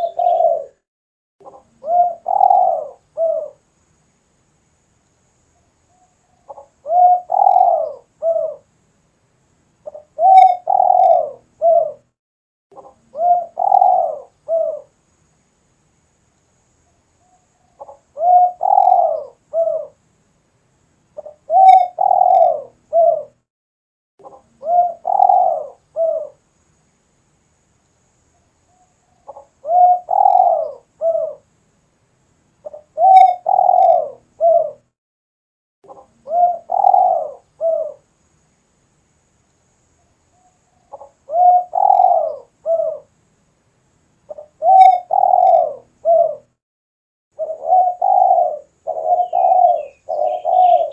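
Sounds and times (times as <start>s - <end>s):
dove cooing: 0.0s - 0.8s, 1.4s - 3.6s, 6.4s - 8.7s, 9.8s - 12.1s, 12.8s - 14.9s, 17.8s - 20.0s, 21.2s - 23.4s, 24.2s - 26.4s, 29.3s - 31.4s, 32.6s - 34.8s, 35.9s - 38.0s, 40.8s - 43.1s, 44.3s - 46.5s, 47.4s - 50.9s.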